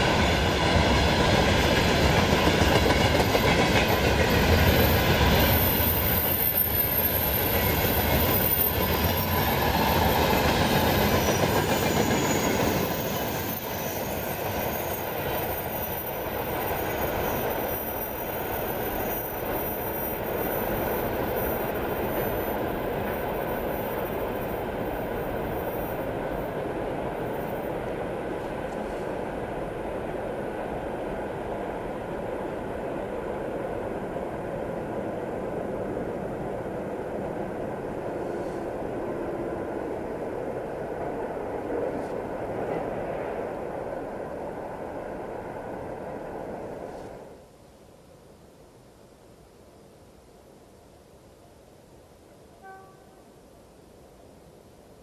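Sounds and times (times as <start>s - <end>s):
train wheels clattering: 0.0s - 26.4s
train wheels squealing: 0.0s - 26.5s, 27.2s - 27.8s
train whining tones: 0.0s - 29.1s.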